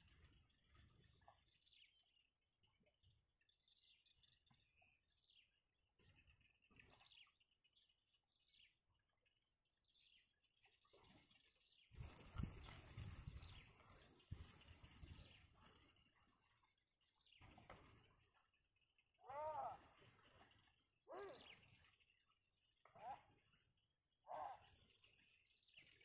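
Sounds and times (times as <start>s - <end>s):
faint bird chirps: 19.2s - 26.0s.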